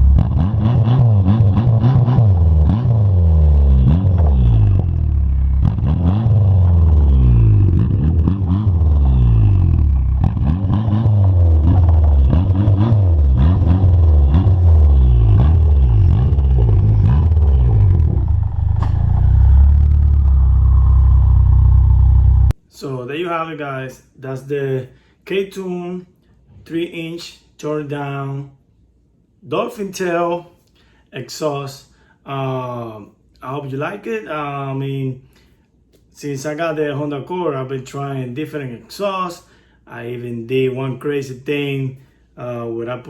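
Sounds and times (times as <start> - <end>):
car engine revving: 0.0 - 22.6.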